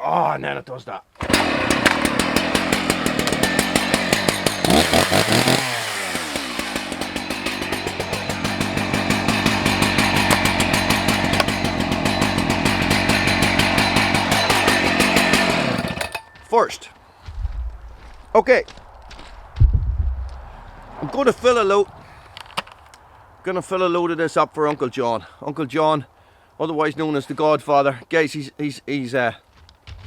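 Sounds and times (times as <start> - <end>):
chainsaw engine revving: 1.2 - 16.3.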